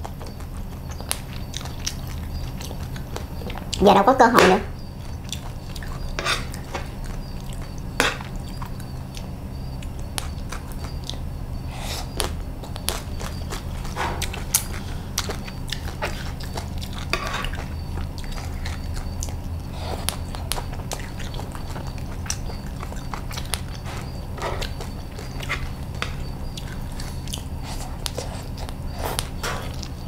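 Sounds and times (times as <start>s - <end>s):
crunchy chewing: 0.0s - 3.8s, 4.7s - 30.0s
steady low hum: 0.0s - 30.0s.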